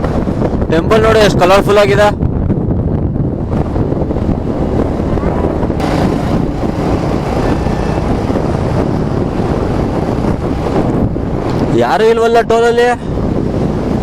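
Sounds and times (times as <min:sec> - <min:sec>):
wind rushing over microphone: 0:00.0 - 0:14.0
motorcycle engine running: 0:03.3 - 0:11.7.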